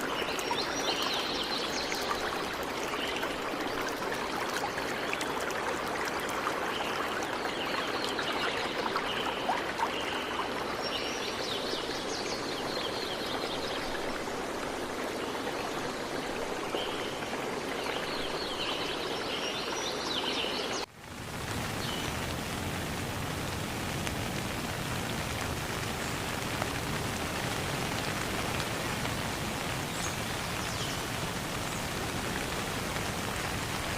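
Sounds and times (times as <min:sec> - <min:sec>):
rain rushing: 0:00.0 - 0:33.9
stream water flowing: 0:00.0 - 0:33.9.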